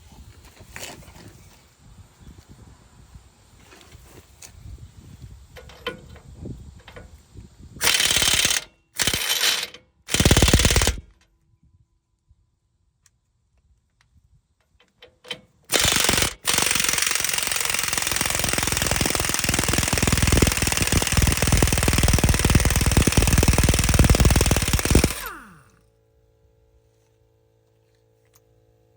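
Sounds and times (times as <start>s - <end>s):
air impact wrench hammering: 7.8s - 11.0s, 15.7s - 25.7s.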